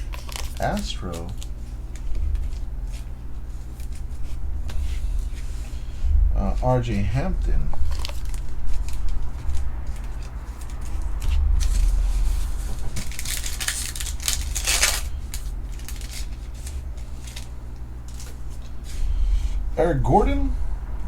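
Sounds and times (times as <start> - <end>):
cards and packaging rustling: 0.0 - 5.6, 7.8 - 19.0
steady low hum: 0.0 - 21.0.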